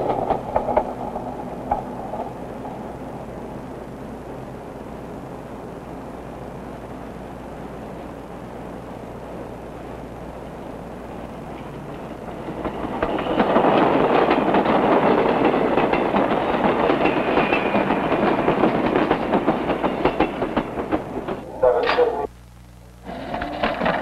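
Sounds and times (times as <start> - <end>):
wheels clacking over rail joints: 0.0 - 3.6, 11.2 - 22.2, 23.1 - 24.0
train rushing past: 0.0 - 22.3.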